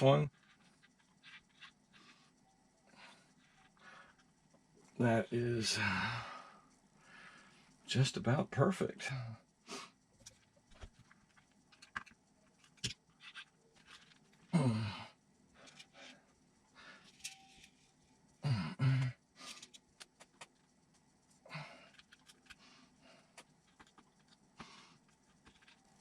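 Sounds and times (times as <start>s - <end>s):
small parts clicking and rattling: 0.0s - 2.4s, 10.1s - 14.5s, 15.5s - 16.4s, 17.0s - 18.3s, 19.4s - 26.0s
person sighing: 5.7s - 6.6s, 14.5s - 15.2s, 18.4s - 19.2s, 21.5s - 22.0s.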